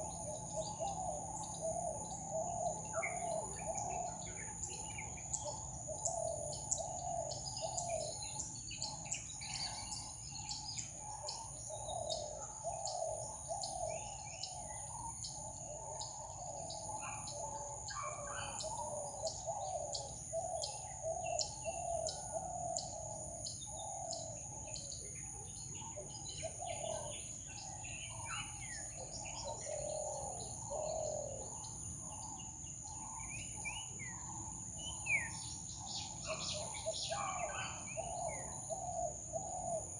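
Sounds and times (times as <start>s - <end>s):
birds chirping and calling: 0.0s - 39.9s.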